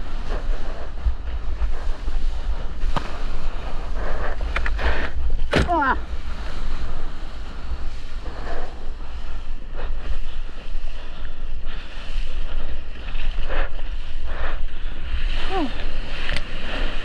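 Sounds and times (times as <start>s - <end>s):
wind buffeting microphone: 0.0s - 17.0s
rushing seawater: 5.1s - 17.0s.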